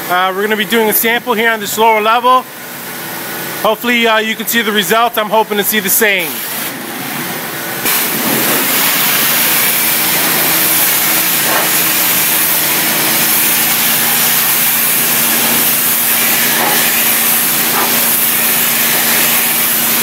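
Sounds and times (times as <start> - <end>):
pressure washer jet hissing: 6.2 - 20.0
machine humming: 6.8 - 20.0.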